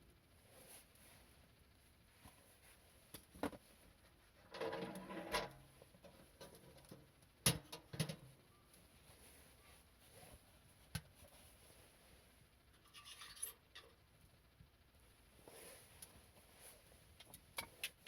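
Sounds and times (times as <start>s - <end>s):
rustling scrape: 15.4s - 17.1s.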